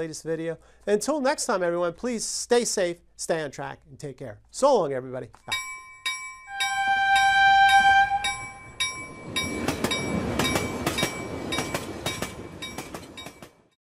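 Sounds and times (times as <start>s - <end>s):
regular ringing strikes: 5.4s - 13.6s
multi-tone train horn: 6.5s - 8.7s
train rumbling by: 6.6s - 13.8s
clickety-clack of train wheels: 8.3s - 13.8s.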